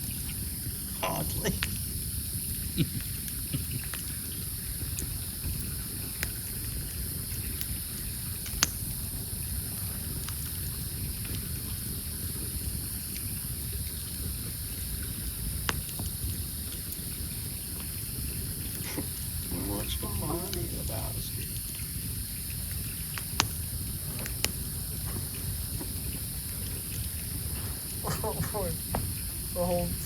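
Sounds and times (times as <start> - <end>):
campfire crackling and popping: 0.0 - 30.0
low fire rumble: 0.0 - 30.0.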